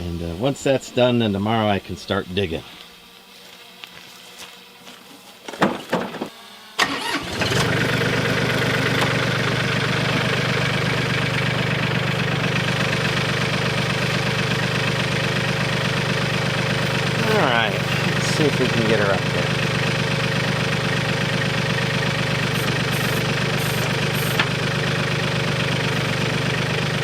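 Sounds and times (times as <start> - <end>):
tractor diesel engine idling: 6.8 - 27.0.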